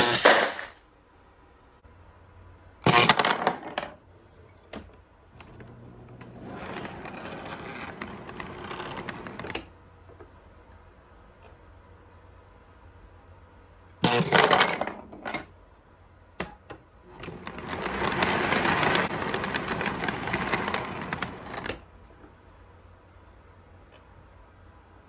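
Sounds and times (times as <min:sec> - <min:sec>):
plastic toy pieces clattering: 0:17.1 - 0:21.8.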